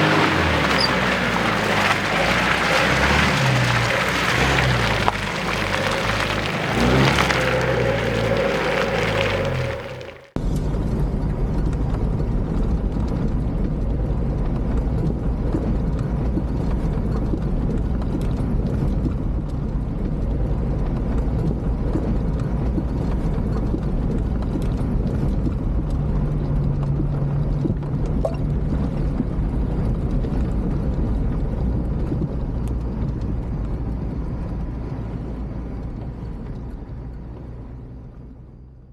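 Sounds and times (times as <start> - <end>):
body and suspension clatter: 0.0 - 10.4
off-road vehicle engine running: 0.0 - 10.4, 11.9 - 38.9.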